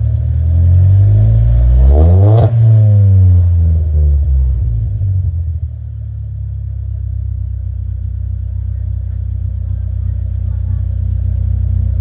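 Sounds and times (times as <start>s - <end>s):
car engine revving and idling: 0.0s - 12.0s.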